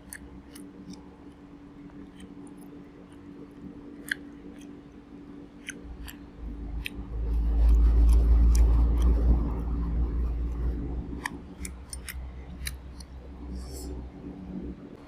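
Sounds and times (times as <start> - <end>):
chewing clicks and smacks: 4.0 - 4.8, 7.6 - 9.6, 11.2 - 13.2
loud low rumble: 5.9 - 15.0.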